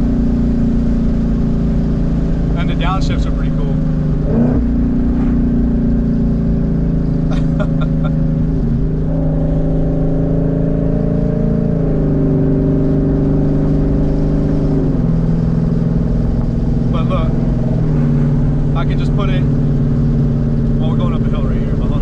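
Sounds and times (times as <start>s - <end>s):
car engine running loud: 0.0s - 22.0s.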